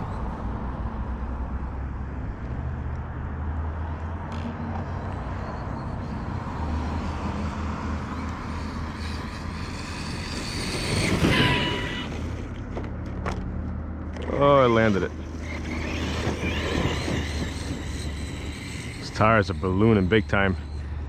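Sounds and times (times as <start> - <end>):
distant rc truck rumbling: 0.0 - 3.2, 3.8 - 21.0.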